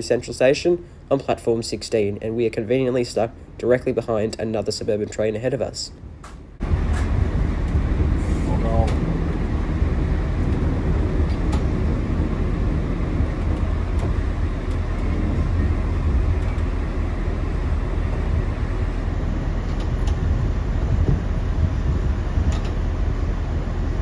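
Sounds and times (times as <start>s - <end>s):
railcar rumbling along track: 0.0s - 24.0s.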